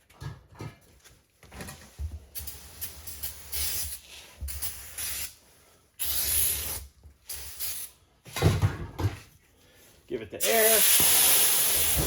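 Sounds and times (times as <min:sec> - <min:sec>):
aerosol can spraying: 0:06.0 - 0:07.9, 0:10.4 - 0:12.0.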